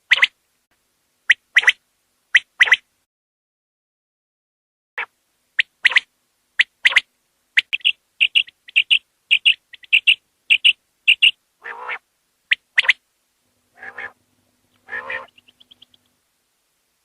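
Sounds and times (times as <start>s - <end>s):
quail calling: 0.1s - 0.3s, 5.0s - 13.0s, 13.7s - 16.1s
lower rougher bird call: 13.7s - 14.2s, 14.8s - 16.0s.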